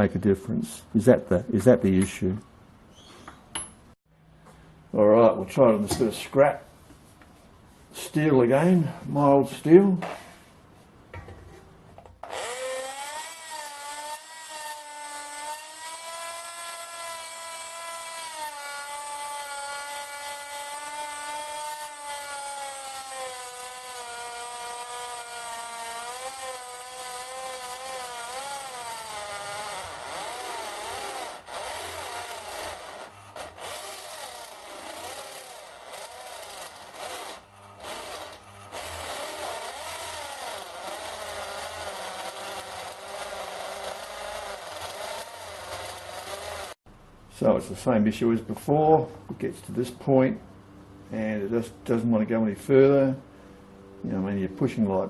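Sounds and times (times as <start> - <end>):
electric drill whining into steel: 12.2 - 46.8.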